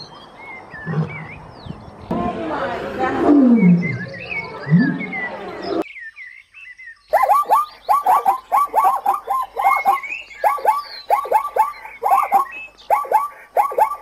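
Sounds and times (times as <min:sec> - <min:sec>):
faint chirps: 0:03.4 - 0:14.0
zebras barking: 0:07.1 - 0:14.0.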